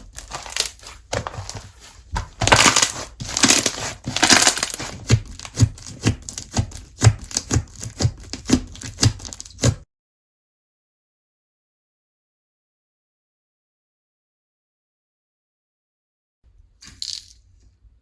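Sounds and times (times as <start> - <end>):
slime crinkling: 0.0 - 9.8
slime popping: 2.4 - 7.4.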